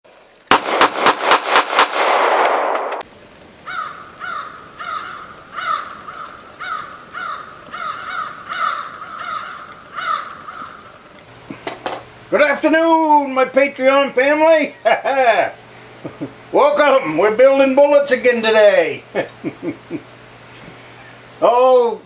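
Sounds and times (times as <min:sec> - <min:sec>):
crow cawing: 0:03.6 - 0:11.1.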